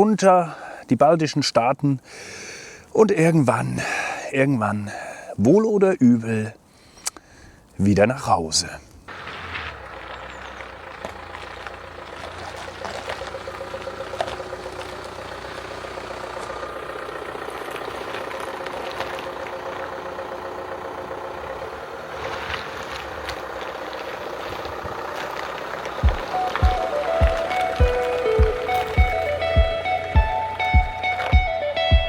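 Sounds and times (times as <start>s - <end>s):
vehicle engine running: 9.1s - 32.0s.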